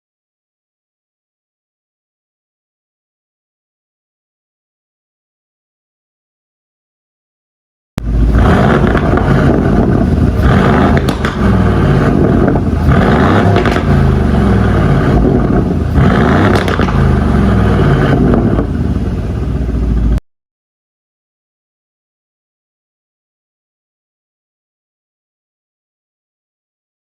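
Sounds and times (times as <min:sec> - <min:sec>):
car engine revving: 0:08.0 - 0:20.2.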